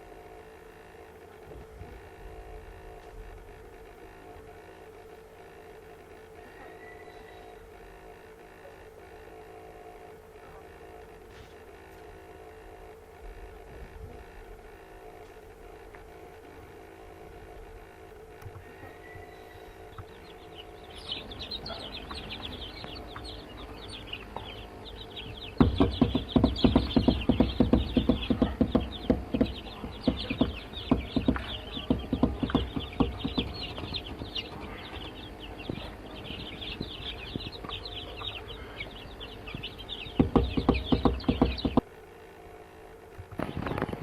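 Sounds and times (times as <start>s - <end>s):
chicks peeping: 10.4s - 42.2s, 42.9s - 44.0s
loud sharp knocks: 25.2s - 38.4s, 39.5s - 41.9s.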